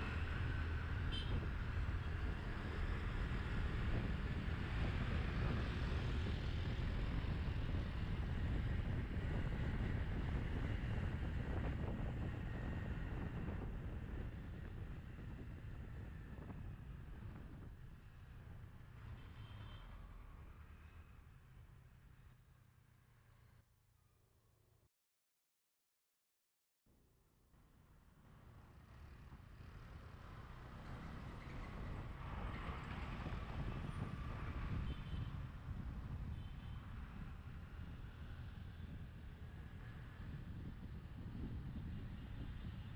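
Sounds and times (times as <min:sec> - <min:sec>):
wind rushing over microphone: 0:00.0 - 0:18.2, 0:30.3 - 0:42.9
city traffic rumble: 0:00.0 - 0:23.5, 0:27.7 - 0:42.9
road and vehicle noise: 0:00.0 - 0:23.7, 0:27.6 - 0:42.9.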